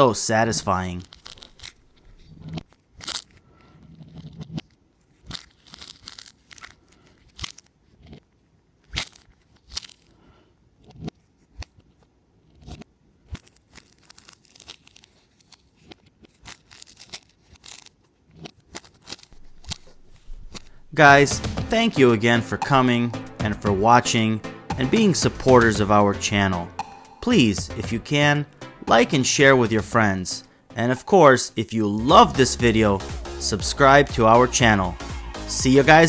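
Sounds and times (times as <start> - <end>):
orange peel tearing and crackling: 1.0 - 3.4, 4.4 - 10.2, 13.2 - 20.9.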